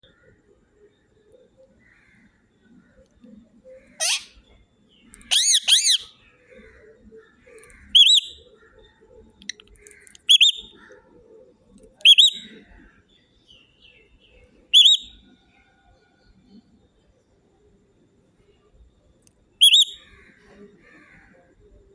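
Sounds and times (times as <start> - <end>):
parrot whistled chirps: 4.0 - 4.3, 5.3 - 6.1, 8.0 - 8.4, 10.3 - 10.7, 14.8 - 15.2, 19.6 - 20.0.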